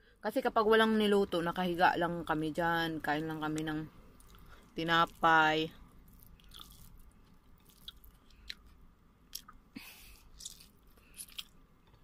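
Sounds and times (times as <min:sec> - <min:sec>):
chewing food: 0:06.0 - 0:09.6, 0:10.3 - 0:12.0.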